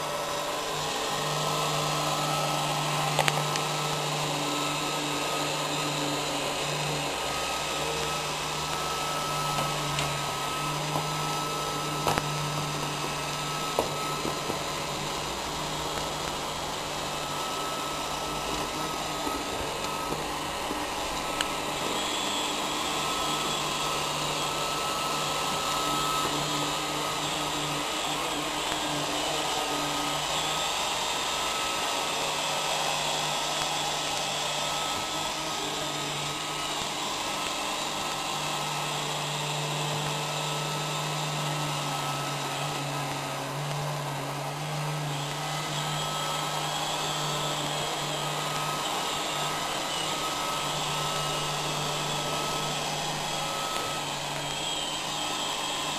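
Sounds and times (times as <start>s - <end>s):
robot vacuum motor whirring: 0.0s - 55.9s.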